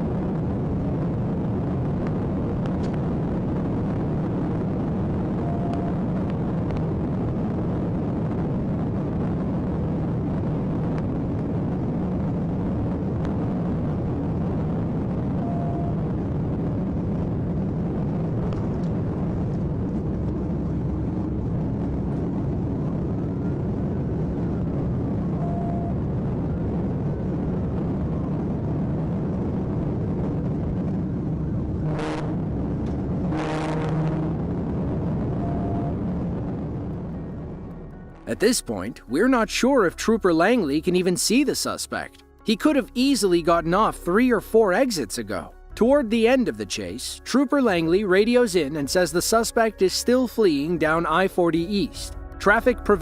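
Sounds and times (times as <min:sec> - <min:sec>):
car driving at highway speed: 0:28.4 - 0:37.8.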